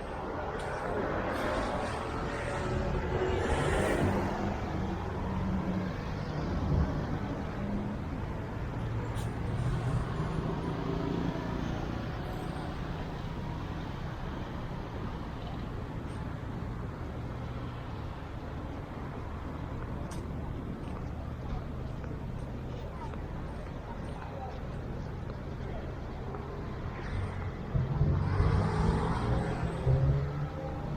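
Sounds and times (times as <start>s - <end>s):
traffic noise: 0.0s - 30.9s
vehicles passing: 0.0s - 30.9s.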